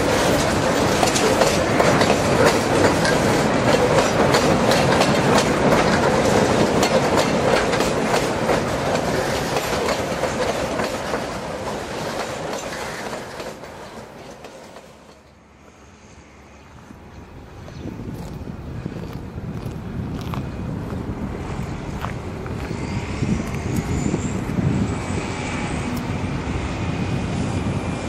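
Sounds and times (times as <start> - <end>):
wheels clicking over rail joints: 0.0 - 15.4
freight train rumbling past: 0.0 - 28.0.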